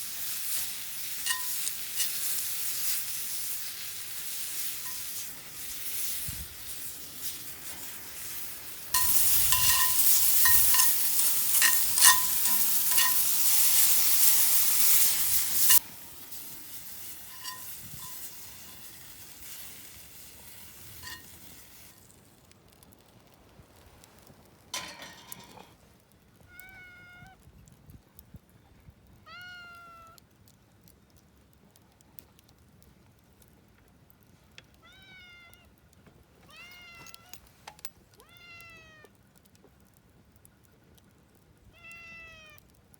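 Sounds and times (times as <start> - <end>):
food sizzling on a grill: 0.0 - 25.9
wood fire popping: 0.0 - 26.5, 30.2 - 34.9, 38.9 - 41.7
cat meowing: 26.5 - 27.4, 29.3 - 30.2, 34.8 - 35.7, 38.2 - 39.1, 41.7 - 42.6.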